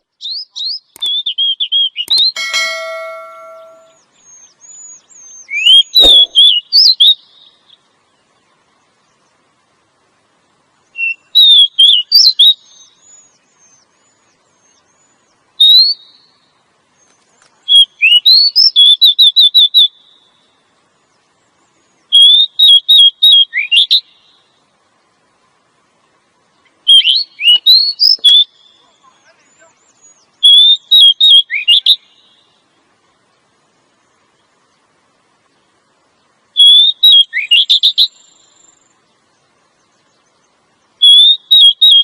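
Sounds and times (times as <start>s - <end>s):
bird calling high whistled notes: 0.2s - 7.7s, 10.9s - 13.9s, 14.7s - 16.3s, 22.1s - 24.1s, 26.9s - 32.4s, 36.6s - 38.5s, 41.0s - 42.0s
sharp click: 2.1s - 4.0s, 6.0s - 6.5s.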